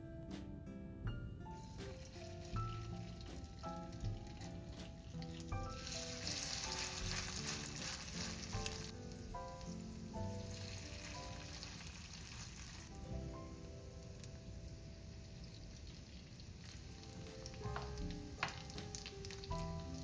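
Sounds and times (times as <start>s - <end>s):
food sizzling in a pan: 2.0s - 13.0s.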